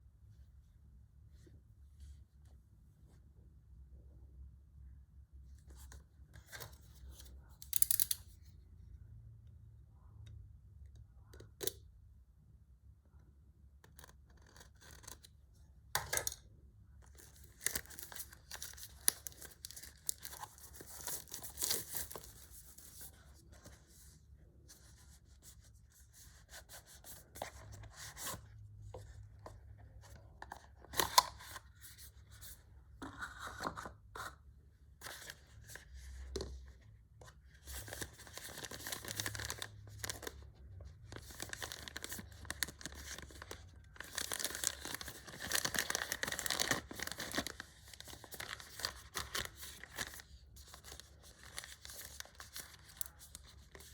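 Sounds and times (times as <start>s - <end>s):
packaging tearing and rustling: 37.7s - 40.4s, 41.1s - 53.9s.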